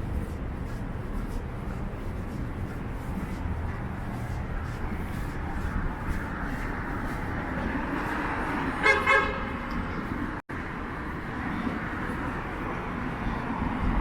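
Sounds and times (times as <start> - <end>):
traffic noise: 0.0 - 14.0
wind: 0.0 - 14.0
car horn toots: 8.8 - 9.6.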